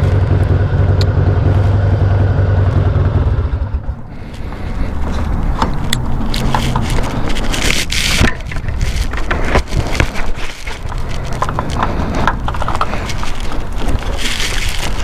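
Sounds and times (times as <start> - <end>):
motorcycle engine running: 0.0 - 15.0
sharp clicks and crackles: 4.1 - 15.0.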